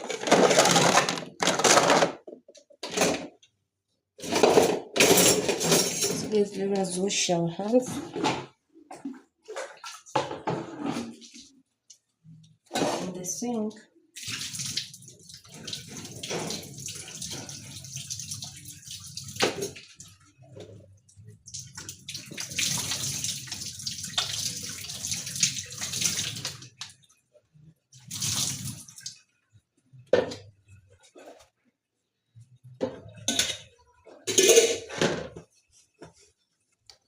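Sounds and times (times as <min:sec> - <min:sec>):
tap water running: 0:14.2 - 0:27.2, 0:27.9 - 0:29.2.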